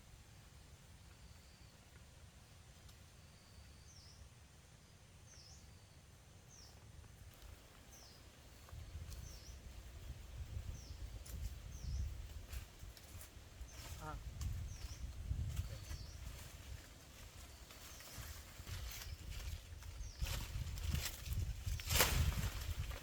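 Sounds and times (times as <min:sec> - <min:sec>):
forest bird calling: 0:05.2 - 0:21.3.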